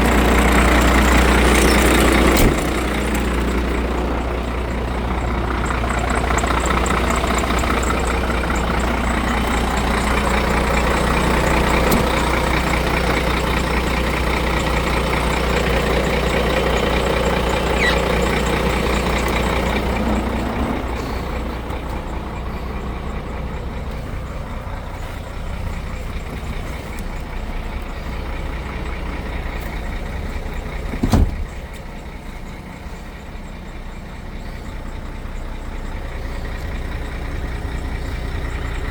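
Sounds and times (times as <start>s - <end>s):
diesel truck engine running: 0.0s - 38.9s
sharp thump: 31.0s - 31.6s.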